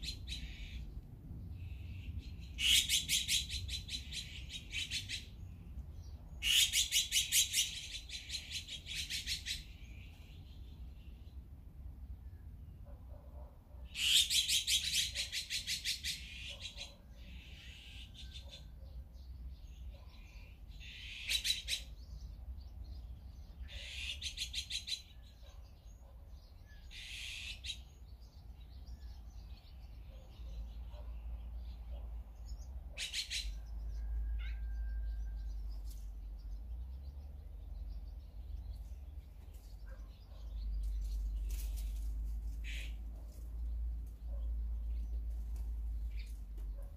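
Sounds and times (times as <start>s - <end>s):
birds chattering: 0.0s - 11.5s, 12.4s - 46.9s.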